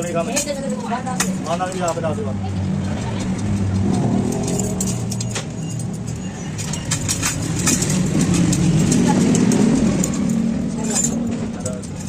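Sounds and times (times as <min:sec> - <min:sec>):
engine running with low hum: 0:00.0 - 0:12.0
sharp metallic clicks: 0:02.8 - 0:10.4.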